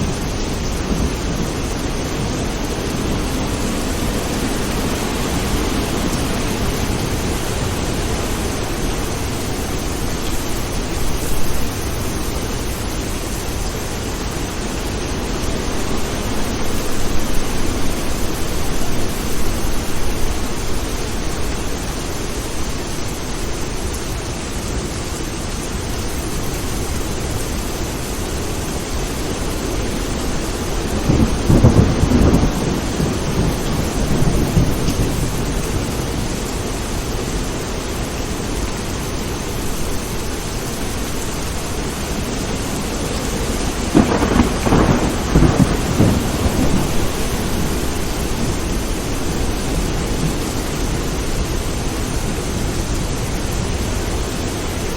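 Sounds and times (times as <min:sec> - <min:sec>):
rolling thunder: 0:00.0 - 0:13.0, 0:29.4 - 0:36.7, 0:42.4 - 0:52.7
steady rain: 0:00.0 - 0:54.9.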